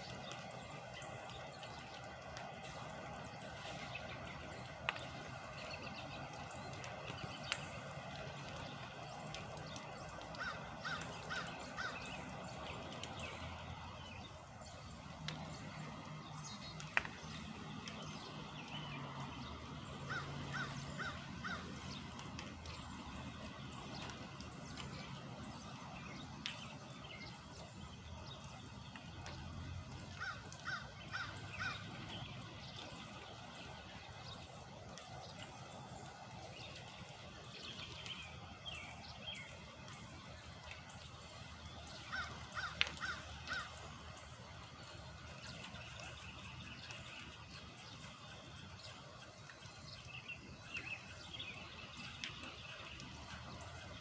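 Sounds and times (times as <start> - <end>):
crow cawing: 10.4 - 12.0, 20.1 - 21.8, 30.2 - 31.8, 42.1 - 43.8.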